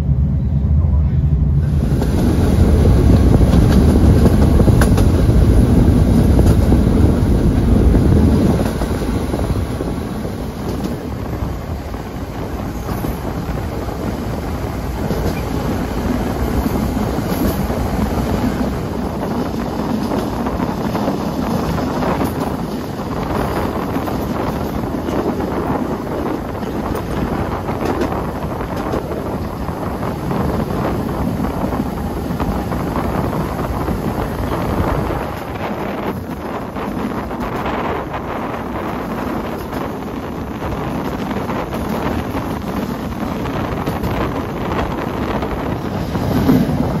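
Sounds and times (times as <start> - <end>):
loud low rumble: 0.0 - 5.9
train running on track: 0.0 - 47.0
wind on microphone: 0.0 - 47.0.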